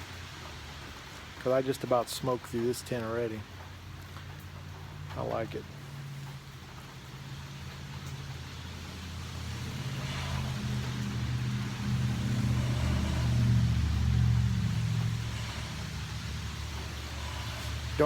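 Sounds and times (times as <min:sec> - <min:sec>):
tyre hiss on wet road: 0:00.0 - 0:18.0
vehicle engine hum: 0:00.0 - 0:18.0.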